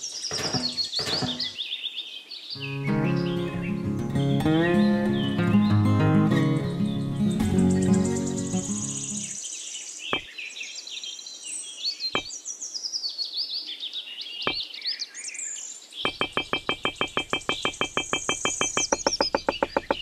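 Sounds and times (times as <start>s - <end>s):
birds chirping and singing: 0.0s - 20.0s
single knocks: 0.3s - 1.6s, 16.1s - 20.0s.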